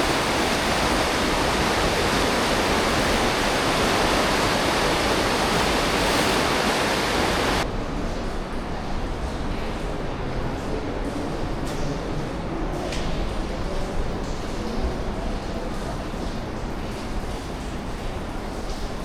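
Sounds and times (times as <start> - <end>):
river water rushing through gorge: 0.0 - 7.6.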